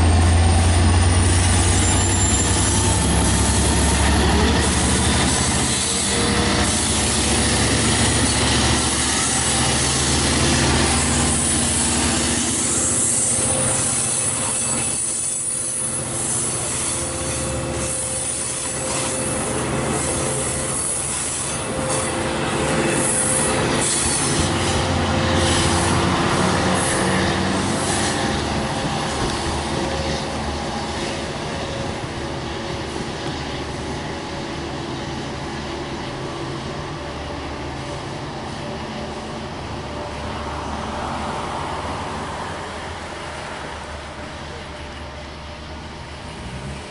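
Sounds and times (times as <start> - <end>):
diesel train engine: 0.0 - 46.9
wheels squealing on rails: 0.0 - 46.9
train wheels clickety-clack: 1.5 - 34.2.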